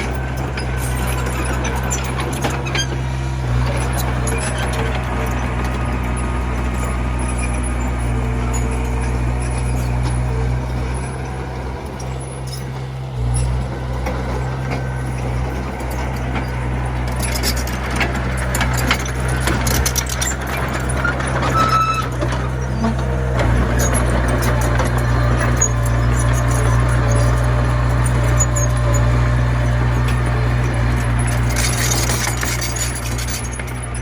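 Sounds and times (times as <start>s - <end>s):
bulldozer diesel engine running: 0.0s - 34.0s
metallic clanks: 0.0s - 34.0s
brief squeal: 21.0s - 30.1s.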